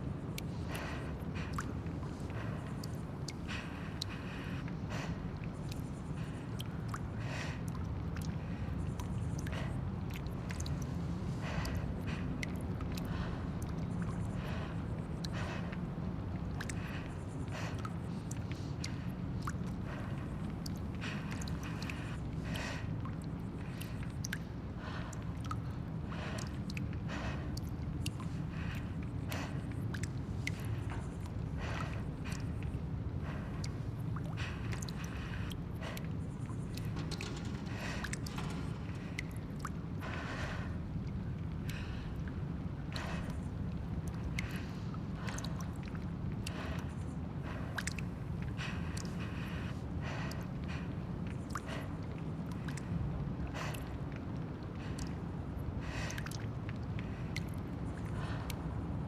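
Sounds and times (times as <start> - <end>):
steady low rumble: 0.0 - 59.0
creaks and rustles: 35.9 - 41.7.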